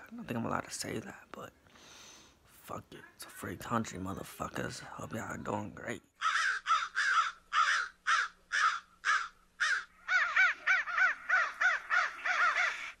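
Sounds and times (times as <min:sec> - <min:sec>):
bird calling: 0:06.2 - 0:13.0.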